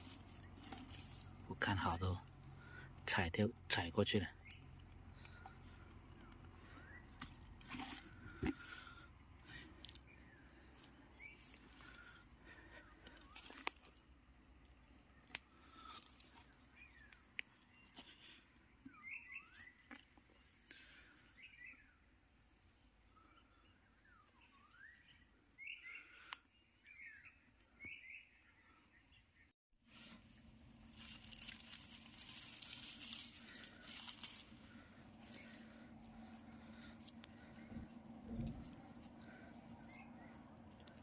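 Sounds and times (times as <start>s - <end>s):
rustling in undergrowth: 0.0s - 3.0s, 9.5s - 14.1s, 30.0s - 41.0s
twigs snapping: 13.0s - 17.6s, 30.9s - 41.0s
birds whistling calls: 18.9s - 19.9s, 23.1s - 29.5s.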